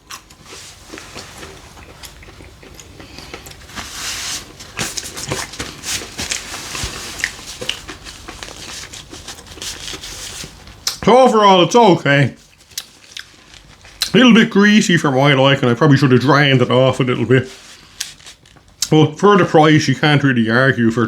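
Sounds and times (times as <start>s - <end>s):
person chewing crunchy chicken: 0.0s - 11.0s, 12.4s - 14.2s.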